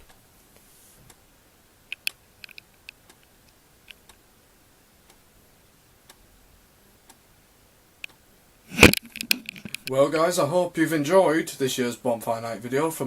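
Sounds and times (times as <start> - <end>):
faint small clicks: 1.9 - 4.2, 8.0 - 8.2.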